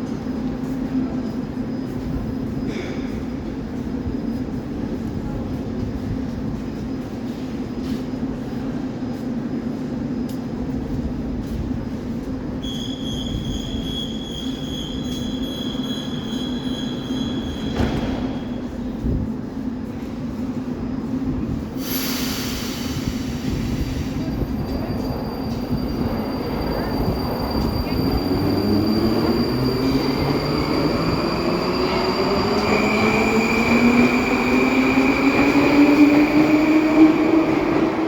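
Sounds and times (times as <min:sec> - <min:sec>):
rail rumble: 0:00.0 - 0:38.0
metro train motor whine: 0:24.2 - 0:38.0.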